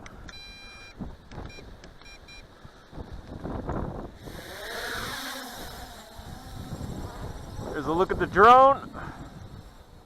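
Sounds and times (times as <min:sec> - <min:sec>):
electronic beeps: 0:00.3 - 0:02.5
quadcopter motors whining: 0:01.4 - 0:10.0
wind buffeting microphone: 0:02.9 - 0:10.0.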